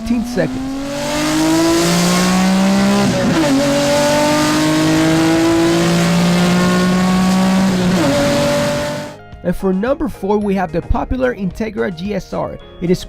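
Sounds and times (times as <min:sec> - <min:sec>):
car engine accelerating hard: 0:00.0 - 0:09.2.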